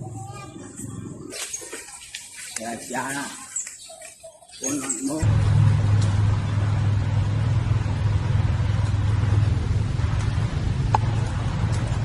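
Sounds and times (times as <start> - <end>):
low droning hum: 5.2 - 12.0.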